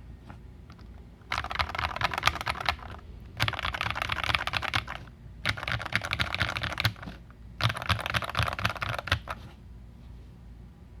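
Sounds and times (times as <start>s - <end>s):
typing on a mechanical keyboard: 0.7s - 9.4s.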